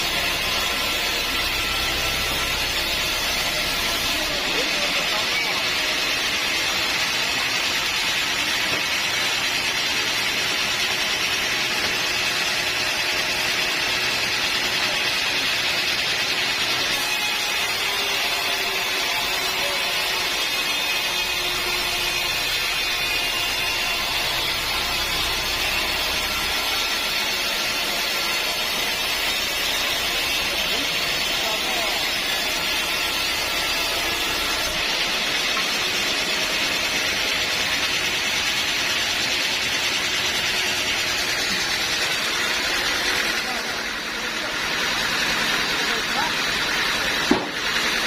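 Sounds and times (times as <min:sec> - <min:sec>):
sawmill saw cutting a log: 0:00.0 - 0:48.0.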